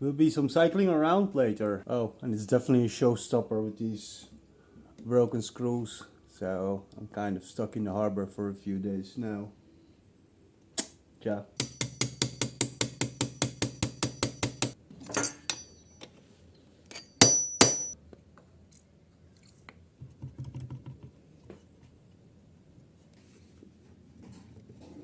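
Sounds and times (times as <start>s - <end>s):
sharp metal knocks: 11.6s - 15.8s, 16.9s - 18.0s
rapid metallic clinking: 11.6s - 16.0s, 16.9s - 18.0s.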